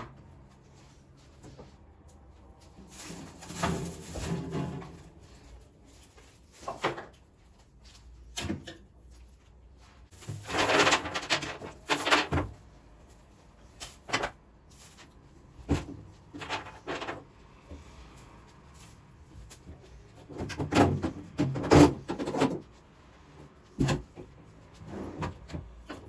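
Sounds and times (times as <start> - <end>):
rustling: 0.6 - 8.1, 9.1 - 12.3
refrigerator drawers clattering: 2.8 - 5.3, 10.2 - 12.6, 15.6 - 17.3, 20.2 - 22.6, 23.8 - 24.2.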